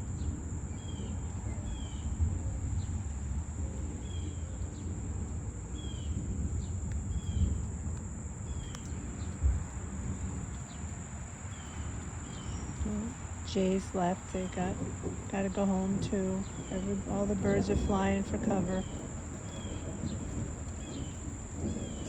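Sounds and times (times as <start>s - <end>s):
insects droning: 0.0s - 22.0s
low wind rumble: 0.0s - 22.0s
bird chirping: 11.5s - 13.1s, 15.9s - 22.0s.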